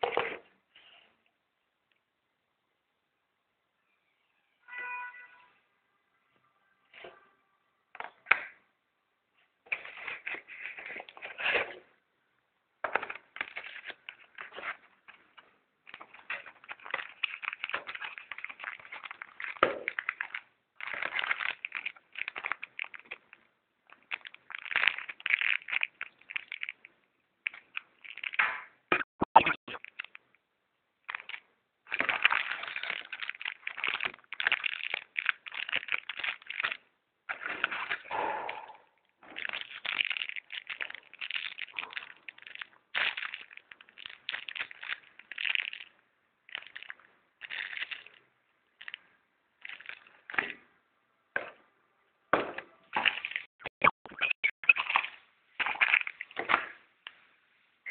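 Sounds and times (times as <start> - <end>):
clicks and crackling of packaging: 12.9 - 26.8, 27.4 - 28.8, 29.7 - 30.2, 31.1 - 38.2, 39.2 - 45.9, 46.5 - 48.2, 48.8 - 49.0, 49.6 - 50.6.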